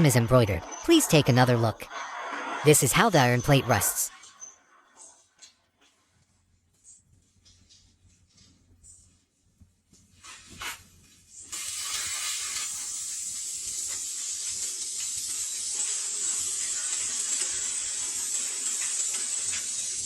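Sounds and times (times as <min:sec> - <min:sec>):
sandblasting gun hissing: 0:11.5 - 0:20.0.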